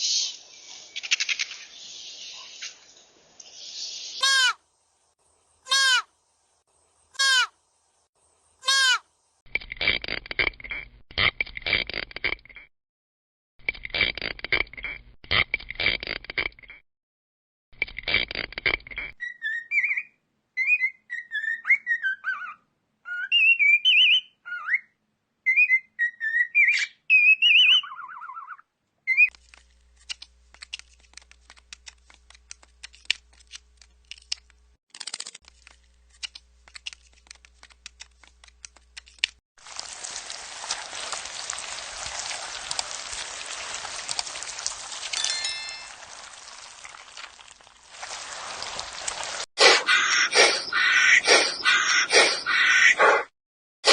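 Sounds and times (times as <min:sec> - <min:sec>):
high gliding chirps and whistles: 0:50.0 - 0:52.6.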